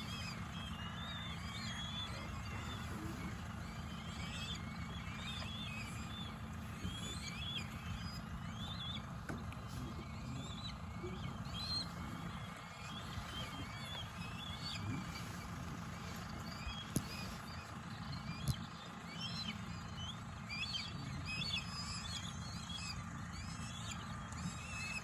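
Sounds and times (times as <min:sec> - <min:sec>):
steady low rumble: 0:00.0 - 0:24.6
birds chirping and whistling: 0:00.0 - 0:25.0.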